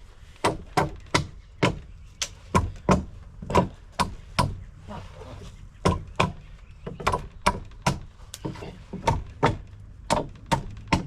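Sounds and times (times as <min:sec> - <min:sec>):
hammer striking wooden boards: 0:00.4 - 0:01.9, 0:02.5 - 0:04.6, 0:05.8 - 0:11.0.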